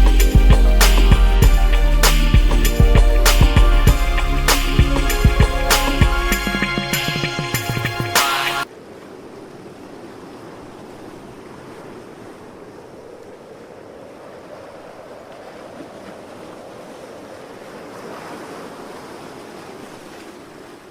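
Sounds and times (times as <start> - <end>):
steady rushing noise: 0.0 - 8.7.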